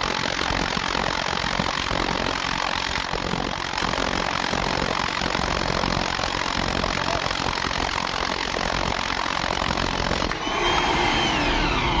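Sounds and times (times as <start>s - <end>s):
drilling machinery running: 0.0s - 12.0s
motor whine gliding down: 9.5s - 12.0s.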